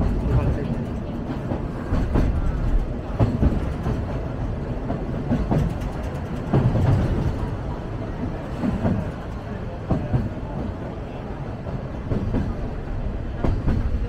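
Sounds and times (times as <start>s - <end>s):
wheels clunking and knocking: 0.0s - 7.6s
train rumbling: 0.0s - 14.0s.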